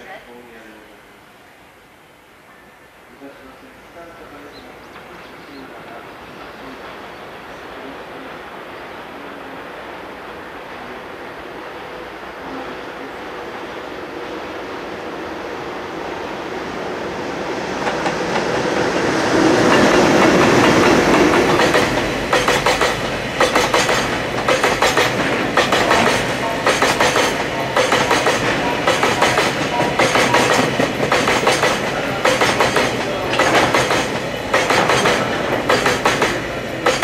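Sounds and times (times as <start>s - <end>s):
wheels clickety-clack on rail joints: 17.8s - 37.0s.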